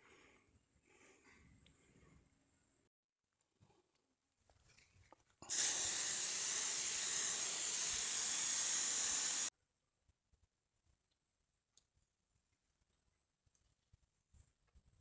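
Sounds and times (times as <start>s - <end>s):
loud steady hiss: 5.4s - 9.5s.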